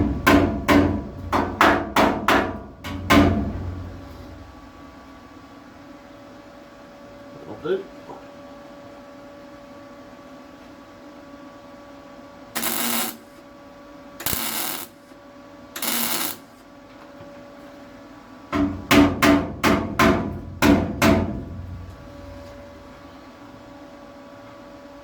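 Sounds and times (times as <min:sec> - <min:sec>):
short bursts of harsh noise: 0:12.6 - 0:13.4, 0:14.2 - 0:15.1, 0:15.8 - 0:16.6.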